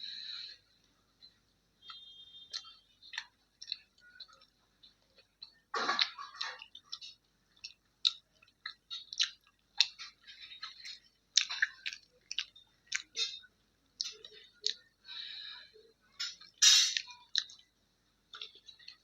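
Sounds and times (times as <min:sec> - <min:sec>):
wet chewing mouth sounds: 0:02.6 - 0:14.9.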